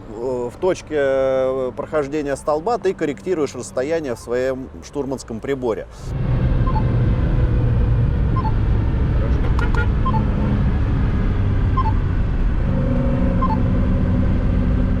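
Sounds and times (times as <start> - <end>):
car engine droning: 6.1 - 15.0
short two-note beep: 12.7 - 13.7.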